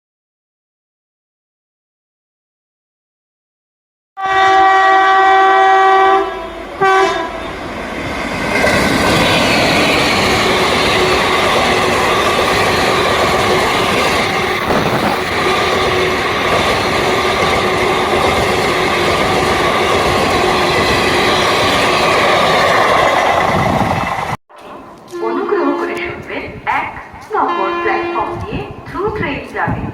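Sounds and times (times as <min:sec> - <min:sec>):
train horn blasts: 0:04.2 - 0:07.5, 0:27.4 - 0:28.8
train wheels rumbling on rails: 0:05.8 - 0:27.5.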